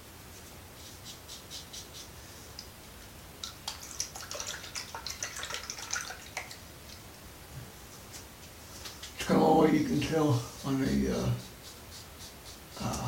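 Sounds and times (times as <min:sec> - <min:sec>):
razor scraping stubble: 0:09.8 - 0:13.0.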